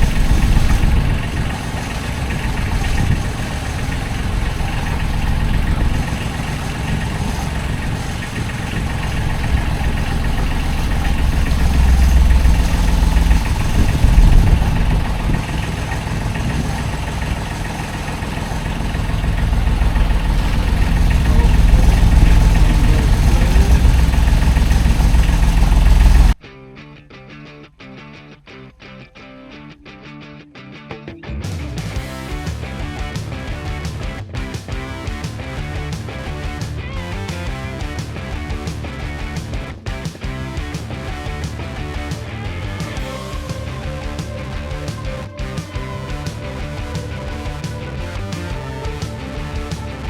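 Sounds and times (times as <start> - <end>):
diesel engine low rumble: 0.0 - 26.4, 40.2 - 50.0.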